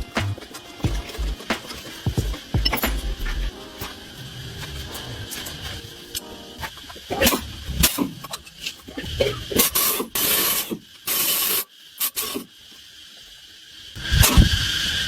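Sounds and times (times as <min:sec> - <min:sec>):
short hissing bursts: 0:09.4 - 0:15.0.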